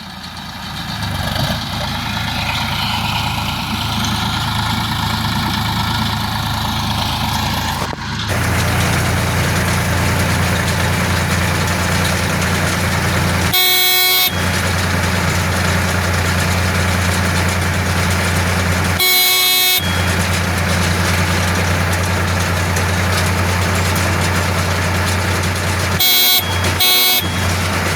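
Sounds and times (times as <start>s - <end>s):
baler engine hum: 0.0s - 27.9s
short horn-like tones: 10.8s - 15.6s, 18.9s - 21.2s, 26.0s - 27.9s.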